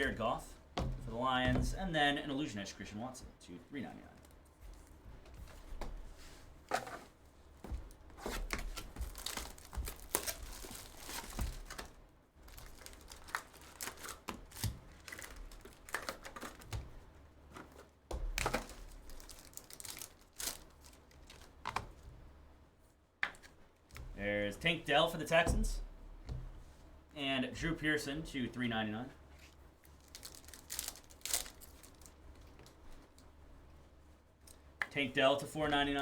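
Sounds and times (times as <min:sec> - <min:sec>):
wrappers crinkling and tearing: 0:08.3 - 0:16.8, 0:18.4 - 0:21.6, 0:29.8 - 0:33.2.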